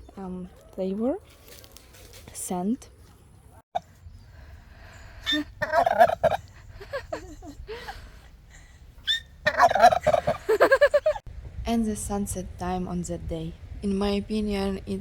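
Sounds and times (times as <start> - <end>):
farm fowl calling: 5.2 - 6.6, 9.0 - 10.6.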